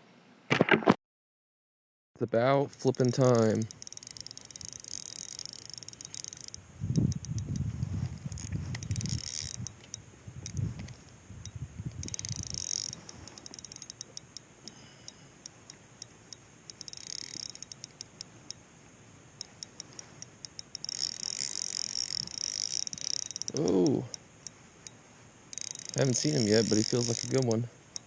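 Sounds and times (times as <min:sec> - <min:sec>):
fishing reel clicking: 0:02.8 - 0:18.6, 0:19.4 - 0:28.0
fishing reel rasping: 0:02.8 - 0:18.6, 0:19.4 - 0:28.0.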